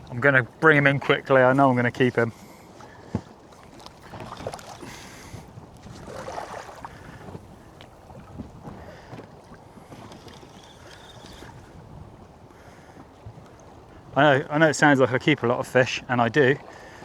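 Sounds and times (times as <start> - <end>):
water slapping against boat hull: 0.0 - 12.3
wind on microphone: 4.0 - 14.2.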